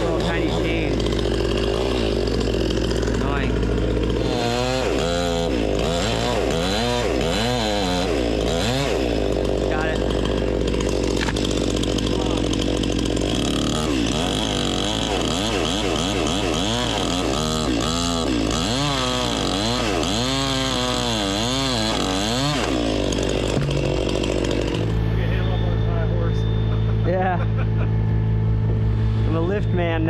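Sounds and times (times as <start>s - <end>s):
chainsaw cutting wood: 0.0s - 25.3s
steady low hum: 23.4s - 30.0s.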